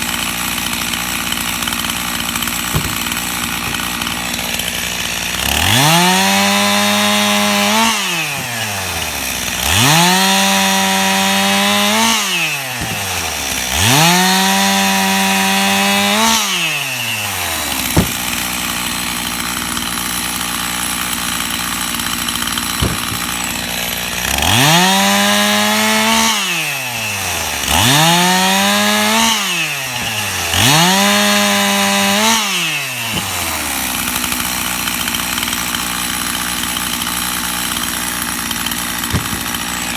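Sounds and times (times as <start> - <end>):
chainsaw revving and idling: 0.0 - 39.9
sharp knocks: 2.3 - 4.8, 12.7 - 13.4, 17.9 - 18.7, 22.6 - 23.8, 33.1 - 33.6, 39.0 - 39.9.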